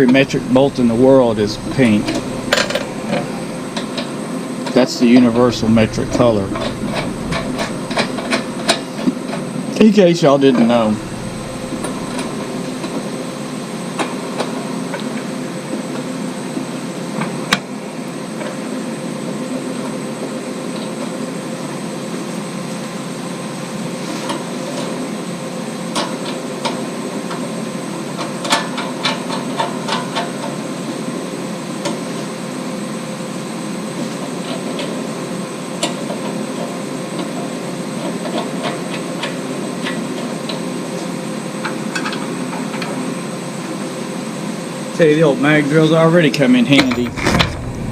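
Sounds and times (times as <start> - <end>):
machine hum: 0.0 - 14.4, 46.8 - 47.9.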